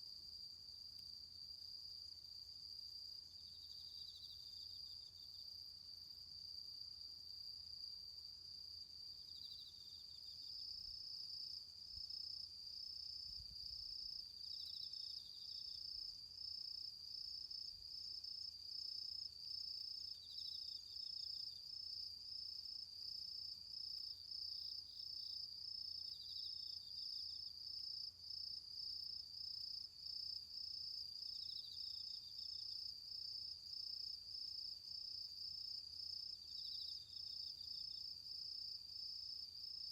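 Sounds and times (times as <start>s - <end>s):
high pulsing insect trill: 9.2s - 39.9s.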